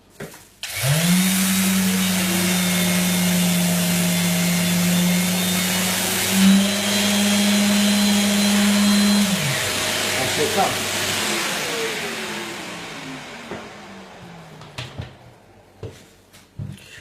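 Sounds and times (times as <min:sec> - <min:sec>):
dust extractor suction: 0:00.6 - 0:14.9
orbital sander on plaster: 0:00.6 - 0:16.0.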